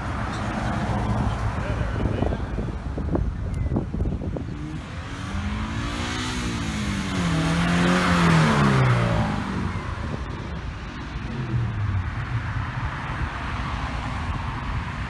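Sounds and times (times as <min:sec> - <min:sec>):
car driving past: 0:05.2 - 0:15.0.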